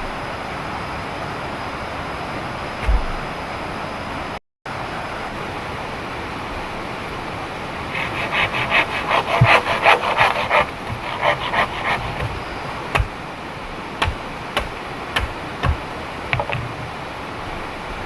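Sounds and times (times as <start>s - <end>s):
hand tool rasping bamboo: 7.9s - 13.2s, 14.0s - 16.9s
sharp knocks: 9.2s - 13.2s, 14.0s - 16.9s.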